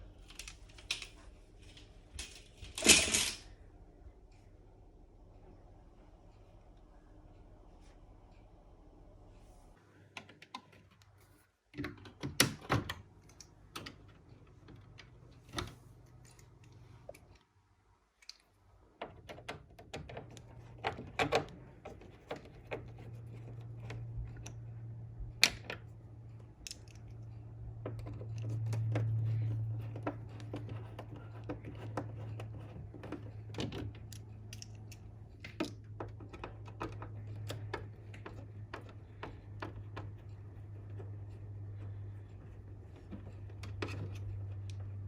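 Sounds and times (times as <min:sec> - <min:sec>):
low steady hum: 0:00.0 - 0:45.0
clicks and knocks on casing: 0:26.5 - 0:45.0.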